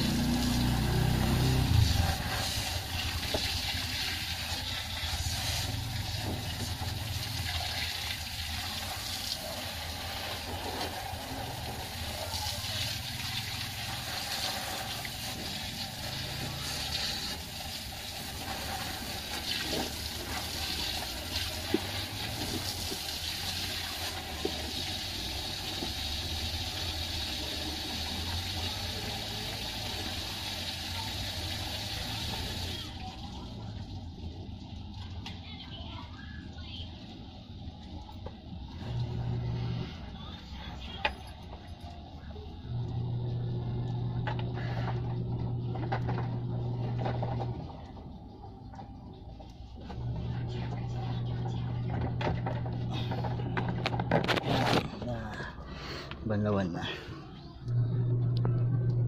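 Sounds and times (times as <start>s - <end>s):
low motor hum: 0.0s - 8.6s, 36.4s - 59.0s
water spraying: 0.0s - 35.6s.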